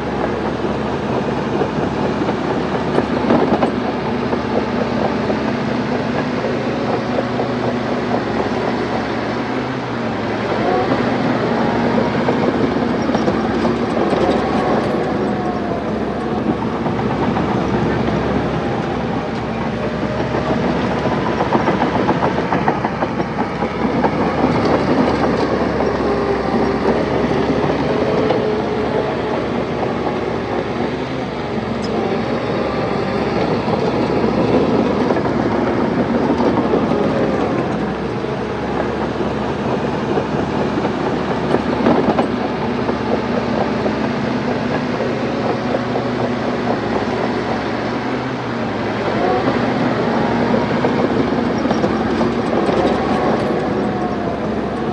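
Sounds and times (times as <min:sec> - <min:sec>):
bulldozer diesel engine: 0:00.0 - 0:54.9
steel tracks clattering: 0:00.0 - 0:54.9.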